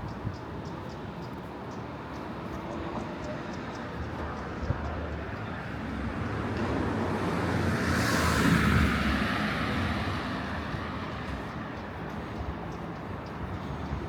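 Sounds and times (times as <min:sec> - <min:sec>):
traffic noise: 0:00.0 - 0:14.0
car passing by: 0:05.7 - 0:12.2.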